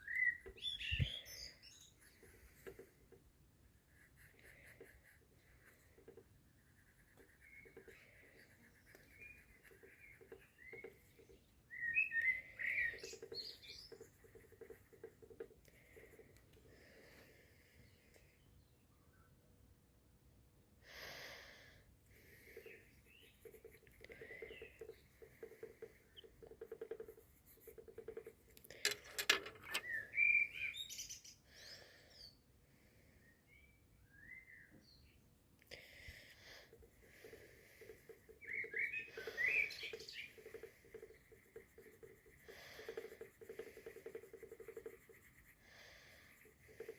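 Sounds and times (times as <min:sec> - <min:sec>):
birds calling: 0:00.0 - 0:02.5, 0:37.1 - 0:41.2
small songbird chirping: 0:00.0 - 0:03.0, 0:07.0 - 0:16.3, 0:22.1 - 0:32.4, 0:37.1 - 0:44.9.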